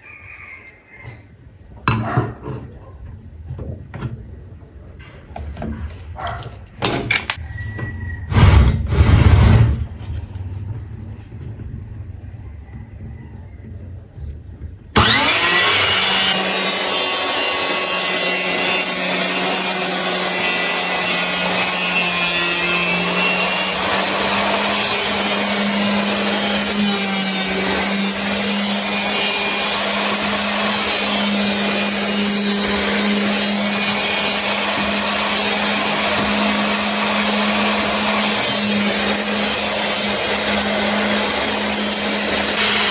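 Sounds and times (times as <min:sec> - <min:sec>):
circular saw running: 0:15.0 - 0:42.9.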